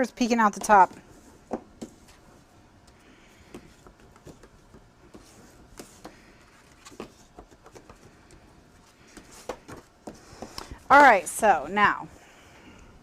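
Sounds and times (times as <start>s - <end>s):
paper taps and rustles: 3.4s - 10.7s.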